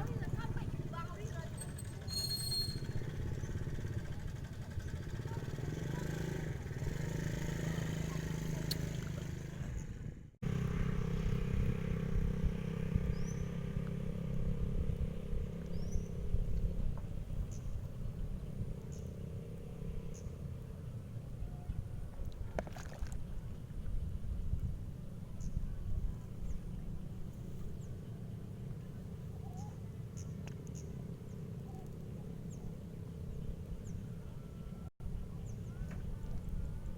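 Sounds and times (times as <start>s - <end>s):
small engine running: 0.0s - 20.7s
faint high chirps: 1.6s - 3.8s.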